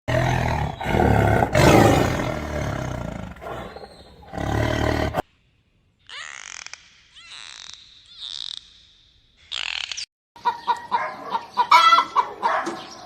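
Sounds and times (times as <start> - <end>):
big cat roaring: 0.1 - 5.2.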